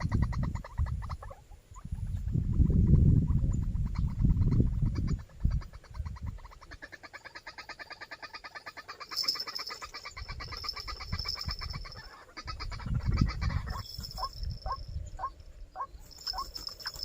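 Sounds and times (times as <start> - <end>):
waterhen calling: 3.8 - 17.0.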